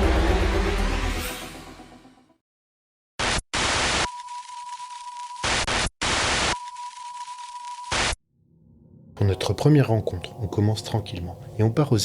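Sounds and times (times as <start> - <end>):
music: 0.0 - 2.4
tv static bursts: 3.2 - 8.2.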